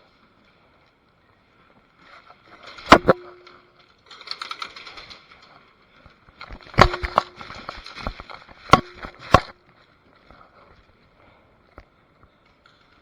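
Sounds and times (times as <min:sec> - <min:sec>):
light clicks and rustling: 0:00.0 - 0:13.0
airsoft gun shots: 0:02.9 - 0:03.4, 0:08.7 - 0:09.5.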